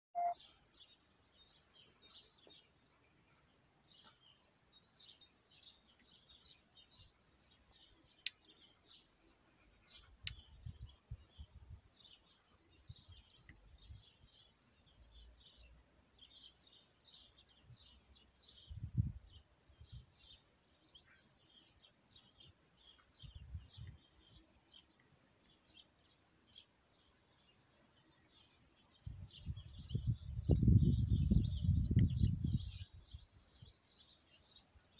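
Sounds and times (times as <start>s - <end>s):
small birds chirping: 0.2s - 34.9s
sharp clicks: 10.2s - 10.5s.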